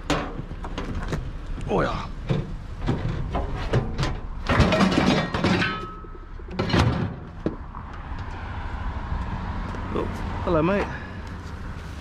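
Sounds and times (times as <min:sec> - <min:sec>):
loud metal clank: 0:02.3 - 0:07.3
loud metal clatter: 0:02.8 - 0:07.4
scrap metal knocks and clinks: 0:03.0 - 0:07.2.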